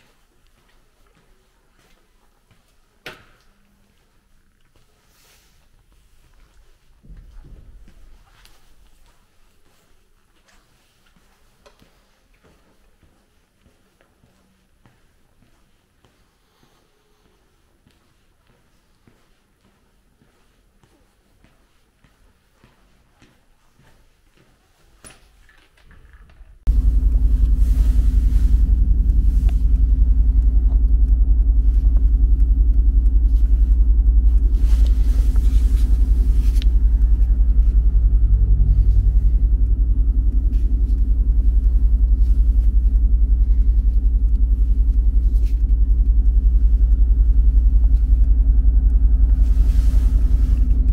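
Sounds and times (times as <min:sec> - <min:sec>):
car engine deep rumble: 0:26.7 - 0:50.9.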